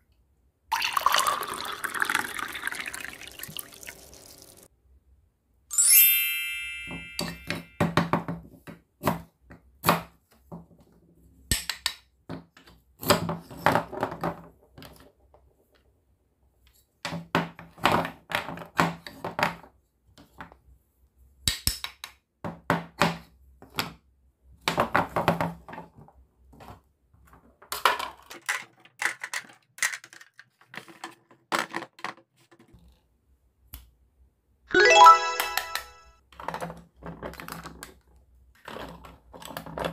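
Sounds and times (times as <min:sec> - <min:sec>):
short ringing ding: 0:05.7 - 0:07.8
plastic clacks and knocks on table: 0:24.6 - 0:33.0.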